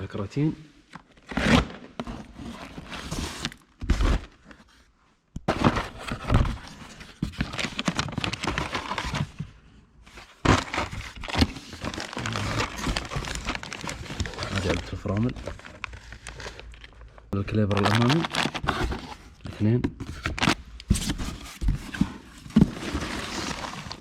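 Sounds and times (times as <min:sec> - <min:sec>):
packing material crinkling: 0:07.3 - 0:09.2, 0:10.4 - 0:19.4, 0:22.6 - 0:24.0.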